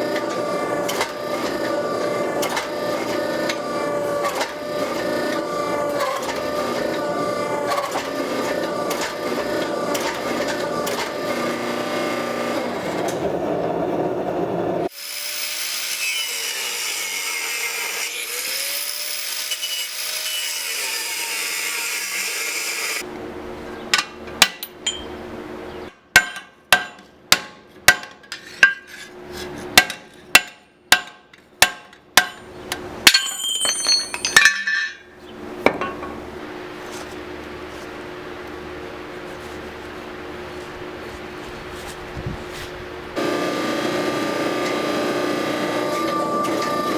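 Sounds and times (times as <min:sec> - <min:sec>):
hammer striking steel on anvil: 0:23.9 - 0:25.2, 0:26.1 - 0:28.9, 0:29.8 - 0:35.0.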